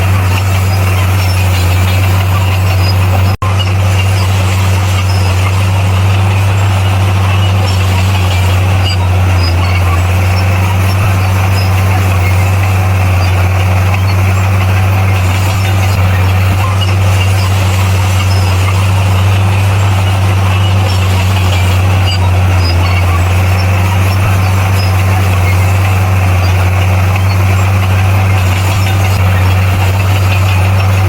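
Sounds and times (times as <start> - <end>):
bulldozer diesel engine running: 0.0 - 31.0.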